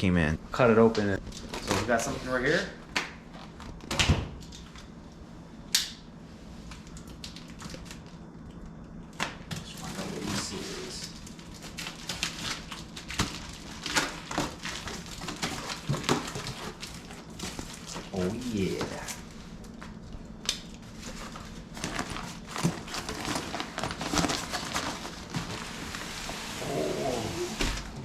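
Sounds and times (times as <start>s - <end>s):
packaging rustling and crinkling: 1.2s - 2.7s, 9.2s - 28.0s
small clicks and crackles: 6.7s - 25.6s.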